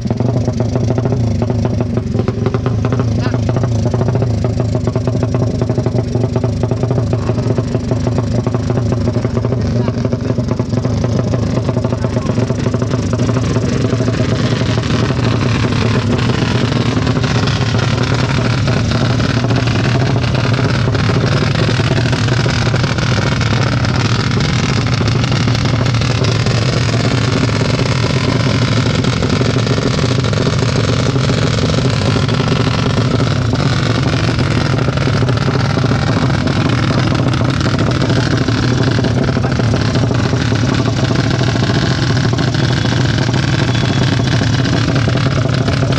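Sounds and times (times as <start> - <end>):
racing motorcycle engines running: 0.0 - 45.9
faint voices: 6.8 - 29.2.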